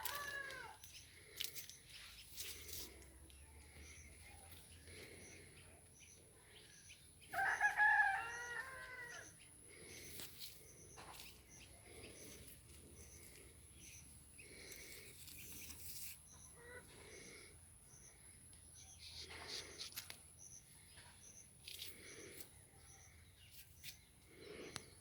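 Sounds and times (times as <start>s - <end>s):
rooster crowing: 0.0s - 0.8s, 7.3s - 9.3s
faint high chirping: 3.4s - 25.0s.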